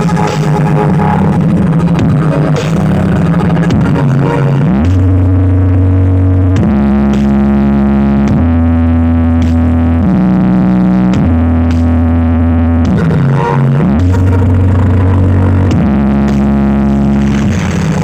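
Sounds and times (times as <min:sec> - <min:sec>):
loud bass-heavy sound system music: 0:00.0 - 0:18.0.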